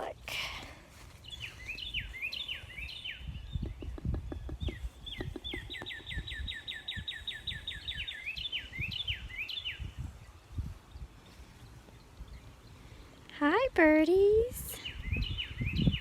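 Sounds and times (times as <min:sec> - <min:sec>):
songbird whistling and trilling: 0:01.2 - 0:11.0, 0:14.7 - 0:16.0.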